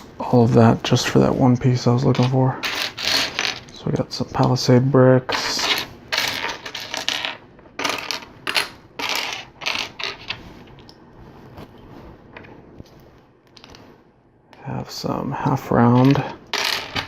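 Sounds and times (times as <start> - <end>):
plastic toy bricks clattering: 16.0 - 17.0.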